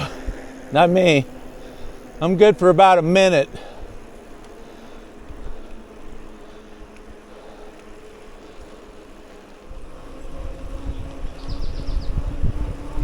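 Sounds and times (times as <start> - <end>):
bicycle tyres rolling: 0.0 - 13.0
faint hum: 0.0 - 13.0
wind rushing over microphone: 0.0 - 13.0.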